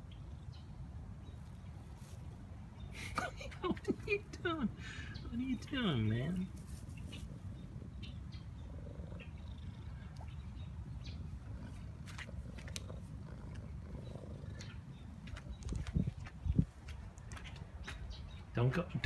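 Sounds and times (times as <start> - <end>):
cat purring: 6.4 - 16.2.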